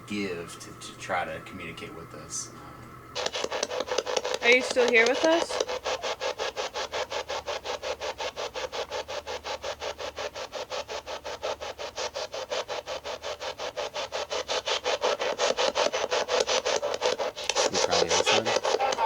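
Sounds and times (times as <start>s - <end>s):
radio static bursts: 0.0s - 6.2s, 17.5s - 19.0s.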